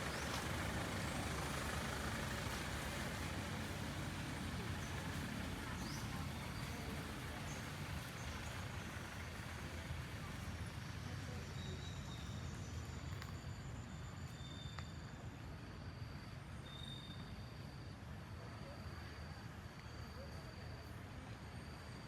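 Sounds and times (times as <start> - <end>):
low rumble background noise: 0.0 - 22.0.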